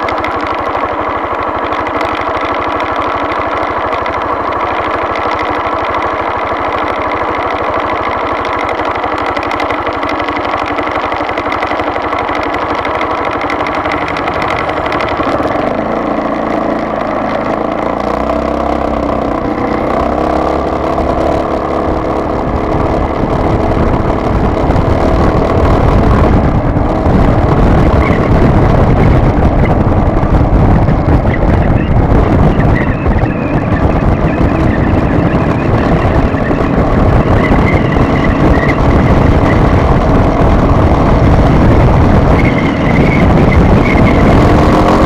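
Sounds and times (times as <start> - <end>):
low rumble of road noise: 0.0 - 45.0
vehicle engine running: 0.0 - 45.0.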